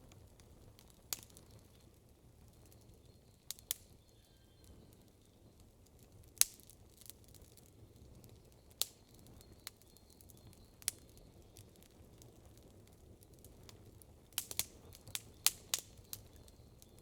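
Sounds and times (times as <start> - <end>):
campfire wood pops: 0.1 - 1.6, 3.5 - 3.9, 6.2 - 9.9, 10.8 - 17.0.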